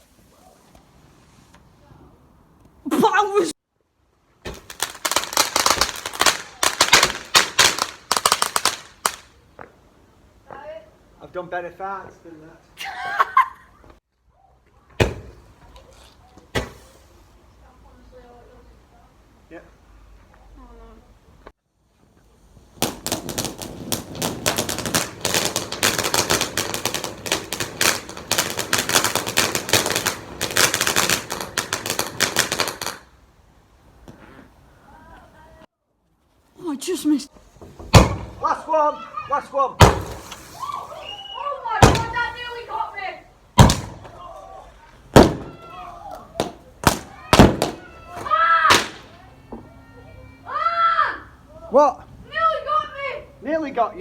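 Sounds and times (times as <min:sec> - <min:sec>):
firework crackling bangs: 0:04.4 - 0:09.8, 0:16.5 - 0:17.2, 0:22.4 - 0:33.3, 0:37.7 - 0:38.7, 0:39.8 - 0:44.4, 0:45.0 - 0:49.3.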